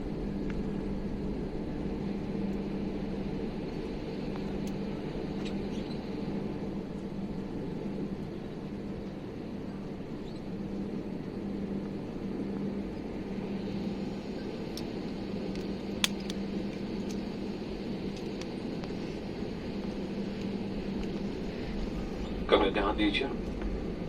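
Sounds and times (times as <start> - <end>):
airliner cabin noise: 13.6 - 24.0
short clicks: 16.0 - 16.4.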